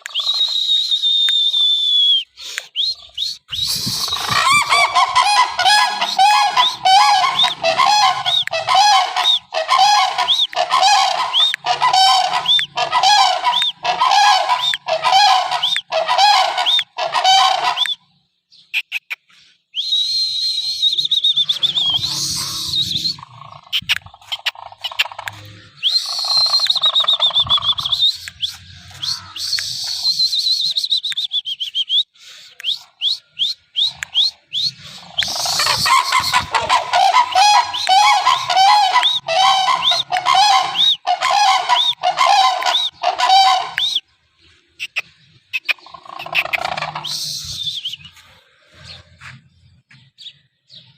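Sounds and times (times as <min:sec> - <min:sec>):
wavering whistle-like calls: 0:00.0 - 0:18.1, 0:18.7 - 0:44.2, 0:44.8 - 0:49.0
cranes honking: 0:04.1 - 0:17.8, 0:35.2 - 0:43.8.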